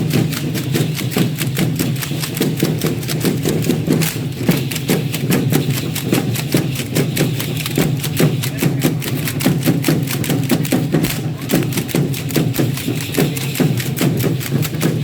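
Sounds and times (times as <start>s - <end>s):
stamping and rattling beats: 0.0s - 15.0s.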